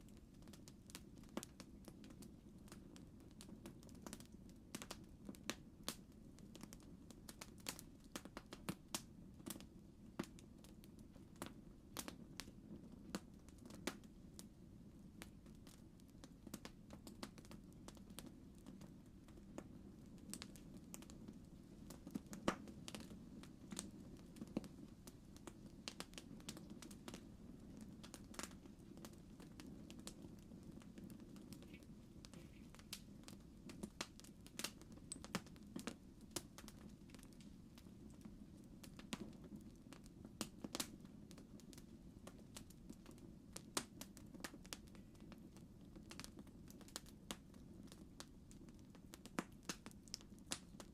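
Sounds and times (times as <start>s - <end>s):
campfire crackling: 0.0s - 50.9s.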